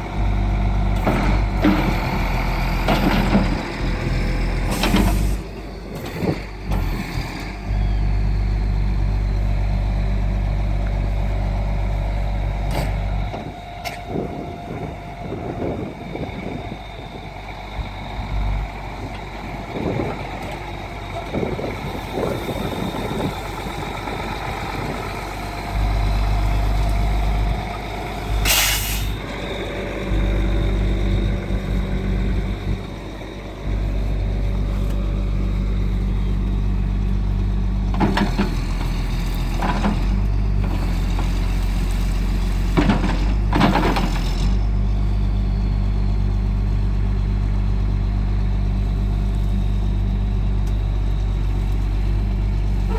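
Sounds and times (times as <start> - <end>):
truck diesel engine running: 0.0 - 52.9
burst of hissing air: 28.5 - 29.2.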